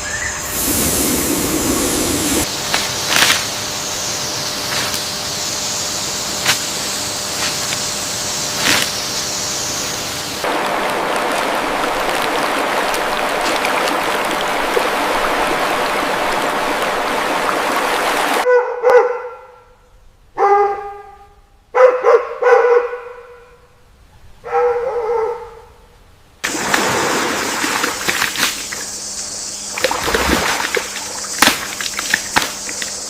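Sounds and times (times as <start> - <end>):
rushing water: 9.9 - 18.4, 26.4 - 28.9, 29.7 - 33.0.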